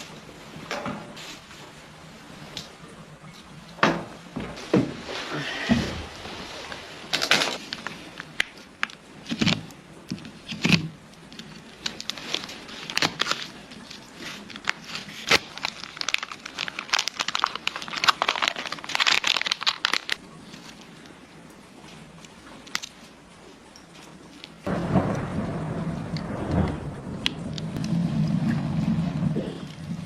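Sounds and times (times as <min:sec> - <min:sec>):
crackling handling sounds: 0:06.6 - 0:25.4.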